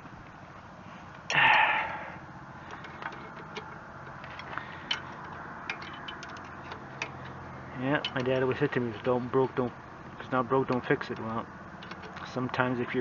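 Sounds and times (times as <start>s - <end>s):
metallic clicks of hand tools: 2.7s - 7.4s.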